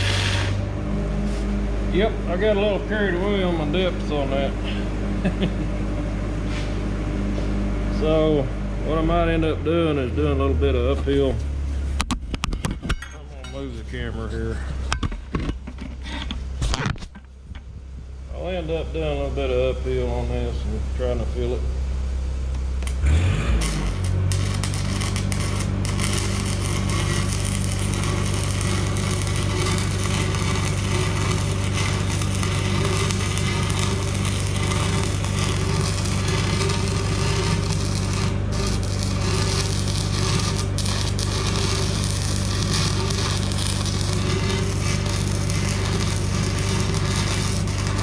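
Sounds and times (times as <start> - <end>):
welding arc crackling: 0.0 - 0.6, 22.8 - 48.0
low hum: 0.0 - 48.0.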